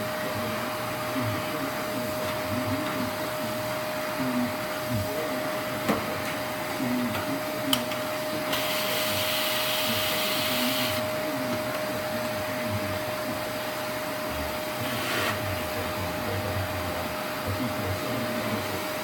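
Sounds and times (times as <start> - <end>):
vacuum cleaner whine: 0.0 - 19.0
airy hiss: 8.3 - 19.0.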